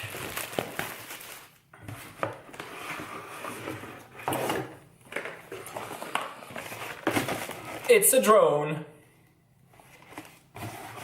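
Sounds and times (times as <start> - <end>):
plastic packaging crinkling: 0.0 - 1.7.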